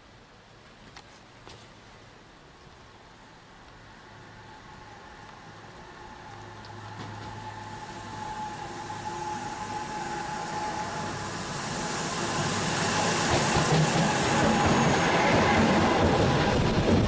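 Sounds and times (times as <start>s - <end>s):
train wheels rushing on rails: 4.8s - 17.0s.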